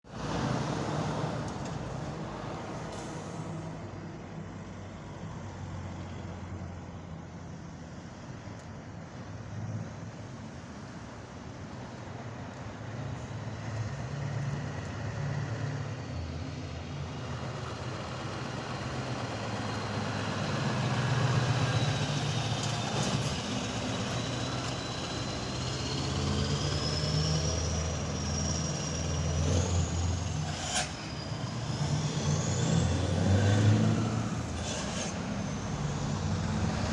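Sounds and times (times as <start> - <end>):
truck engine running: 16.9 - 36.9.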